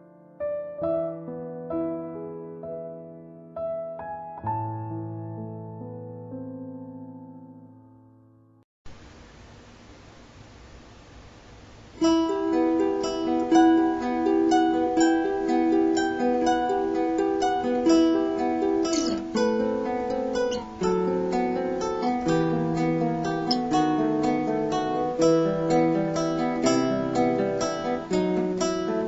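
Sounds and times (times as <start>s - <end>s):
plucked acoustic guitar melody: 12.0s - 29.0s.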